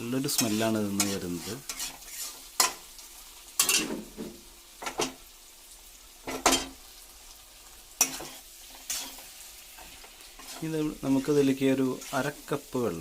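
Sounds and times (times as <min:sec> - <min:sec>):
chicken frying in hot oil: 0:00.0 - 0:13.0
spoon scraping a pan: 0:00.3 - 0:05.2, 0:06.2 - 0:06.8, 0:07.9 - 0:12.4.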